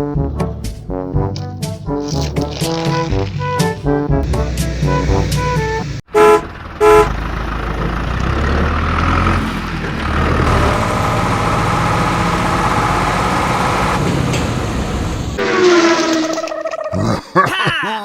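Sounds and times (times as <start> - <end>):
truck engine rumbling: 2.1 - 15.6
horn honk: 4.2 - 7.2.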